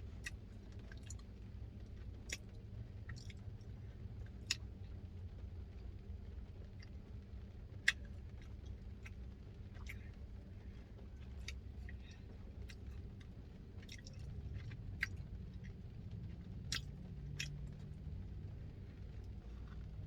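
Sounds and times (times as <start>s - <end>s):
person chewing food: 0.0s - 5.0s, 7.6s - 18.0s, 19.2s - 20.0s
low steady hum: 0.0s - 20.0s
wet mouth clicks: 16.7s - 17.7s.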